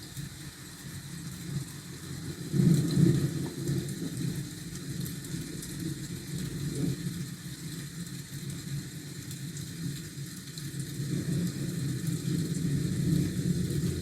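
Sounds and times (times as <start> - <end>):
rain hiss: 0.0 - 14.0
low continuous rumble: 13.0 - 14.0.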